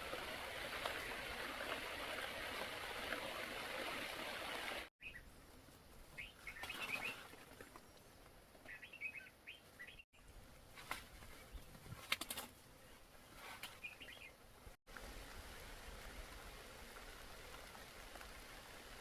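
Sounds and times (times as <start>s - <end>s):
steady rushing hissing noise: 0.0s - 6.1s, 14.4s - 19.0s
small birds chirping: 6.1s - 10.3s, 12.8s - 14.4s.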